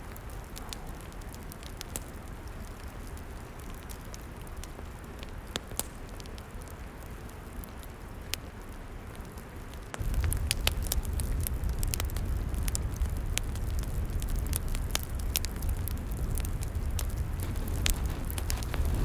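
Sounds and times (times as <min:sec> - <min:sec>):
campfire crackling and popping: 0:00.0 - 0:19.0
low rumble: 0:10.0 - 0:19.0.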